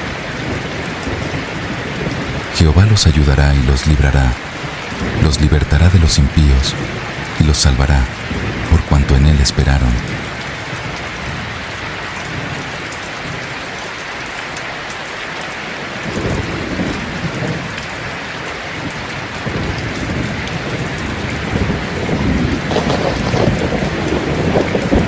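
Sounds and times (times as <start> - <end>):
rain hissing: 0.0 - 25.0
thunder rumbling: 3.4 - 8.9, 16.0 - 18.2, 18.8 - 25.0.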